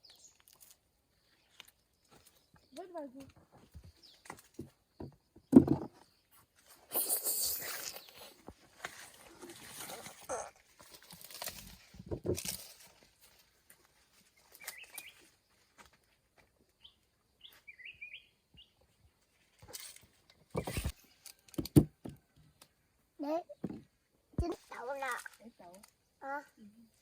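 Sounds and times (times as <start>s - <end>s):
rustles and light knocks: 1.4s - 6.9s, 7.8s - 16.7s
short bird chirps: 14.6s - 15.2s, 16.8s - 18.7s.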